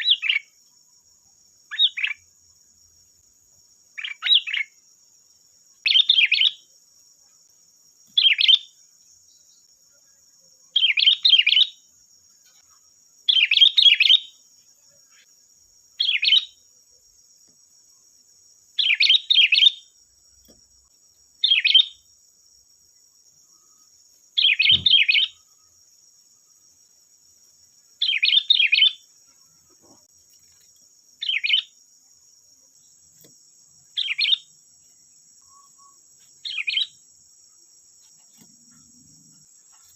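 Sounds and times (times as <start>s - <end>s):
faint high-pitched hiss: 0.0s - 39.9s
bulbul singing: 1.7s - 2.2s, 4.0s - 4.8s, 5.8s - 6.7s, 8.0s - 9.7s, 10.8s - 11.9s, 13.3s - 14.4s, 16.0s - 16.6s, 18.7s - 20.0s, 21.4s - 22.1s, 24.3s - 25.6s, 28.0s - 29.1s, 31.2s - 31.8s, 33.8s - 34.6s, 35.4s - 37.1s.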